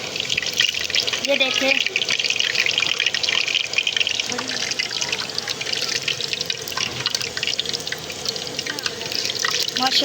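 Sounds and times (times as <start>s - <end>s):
hot oil sizzling and crackling: 0.0s - 10.0s.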